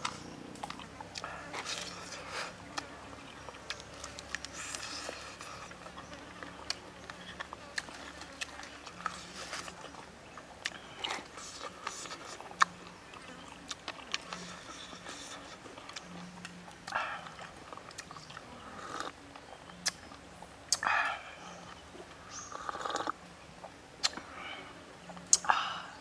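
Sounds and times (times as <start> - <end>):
person sipping: 0.0 - 6.0, 18.7 - 19.2, 22.5 - 23.2
chewing with clicks and crunches: 0.0 - 26.0.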